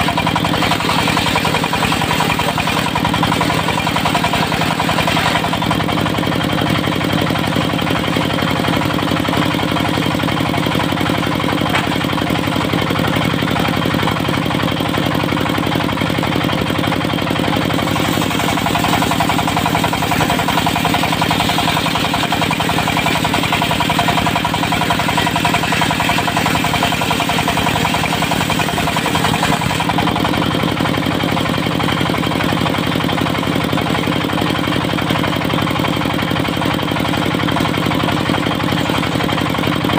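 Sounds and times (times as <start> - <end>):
saw blade cutting wood: 0.0 - 6.2, 10.9 - 12.5, 17.4 - 30.4
diesel engine running: 0.0 - 39.9.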